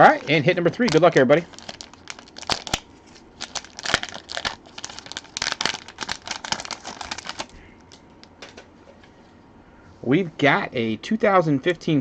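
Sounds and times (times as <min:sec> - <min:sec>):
plastic packaging crinkling and tearing: 0:00.7 - 0:08.3.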